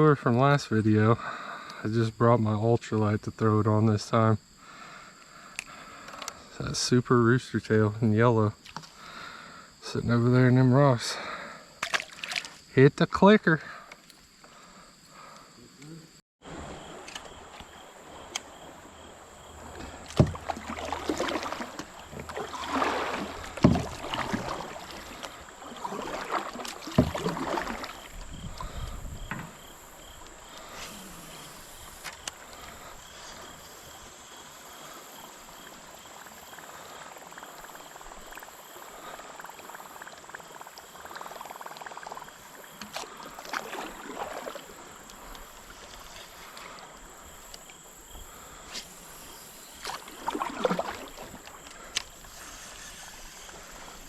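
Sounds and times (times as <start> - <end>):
kayak paddle splashing: 11.3 - 12.7, 16.4 - 54.0
high-pitched insect buzz: 14.0 - 43.2, 51.0 - 54.0.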